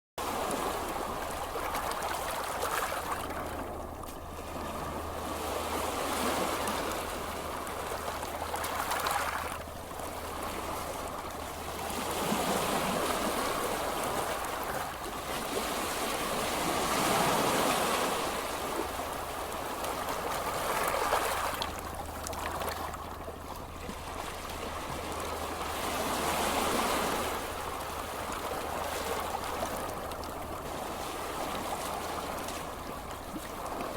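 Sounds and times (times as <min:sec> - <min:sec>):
ocean waves washing on beach: 0:00.2 - 0:33.9.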